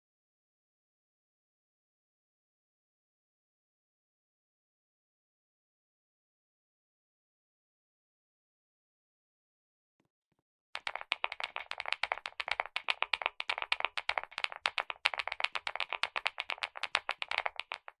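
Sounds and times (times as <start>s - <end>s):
fast keyboard typing clacks: 10.8s - 18.0s.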